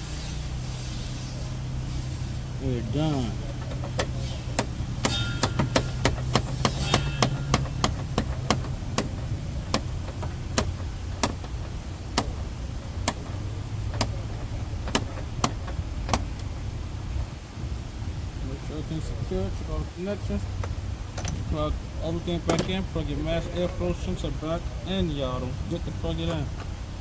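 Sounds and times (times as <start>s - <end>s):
low steady hum: 0.0s - 27.0s
sharp irregular clicks: 3.6s - 16.5s.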